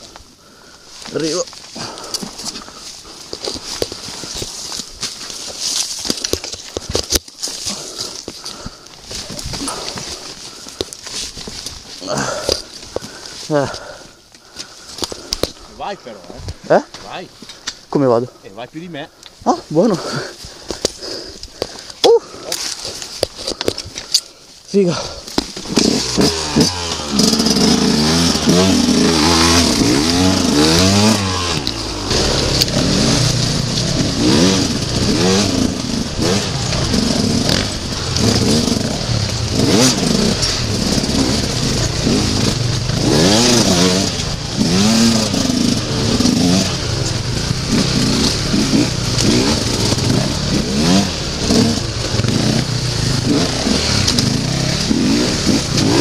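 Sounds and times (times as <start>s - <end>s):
dirt bike engine revving: 25.6s - 56.0s.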